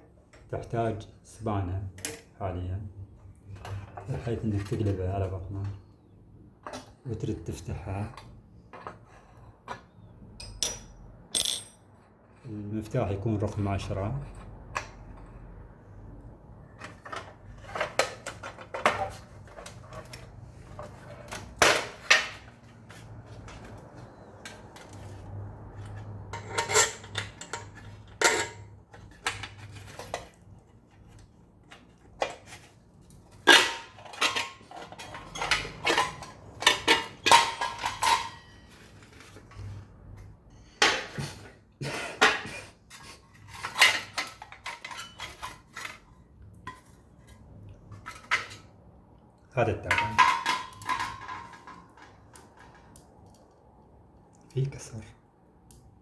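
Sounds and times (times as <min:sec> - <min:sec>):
ringing metal clang: 0:11.4 - 0:11.8
metallic clanks and rattles: 0:49.9 - 0:52.7.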